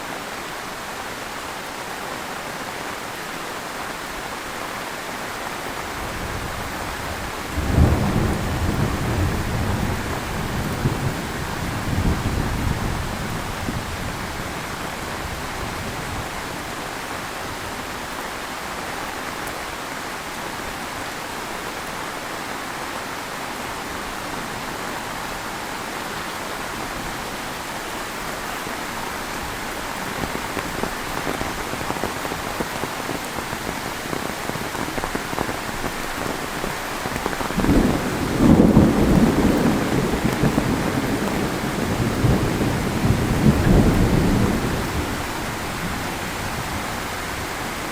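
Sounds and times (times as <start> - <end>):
heavy rain falling: 0.0 - 47.9
thunder rumbling: 6.1 - 16.3, 30.0 - 47.5.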